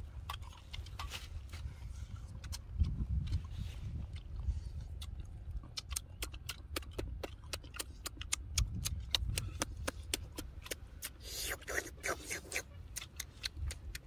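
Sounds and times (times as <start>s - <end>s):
low rumble: 0.0s - 11.0s
chewing and lip-smacking: 0.0s - 14.0s.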